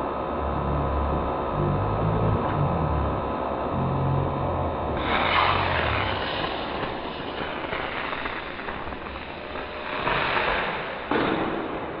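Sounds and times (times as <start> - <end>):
firework burst: 5.0 - 12.0
firework fizzing and crackling: 5.0 - 12.0.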